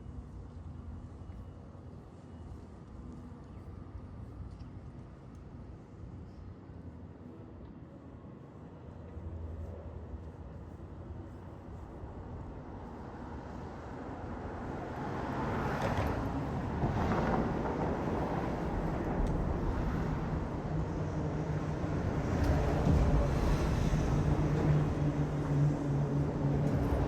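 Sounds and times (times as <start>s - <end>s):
road or harbour noise: 0.0s - 27.0s.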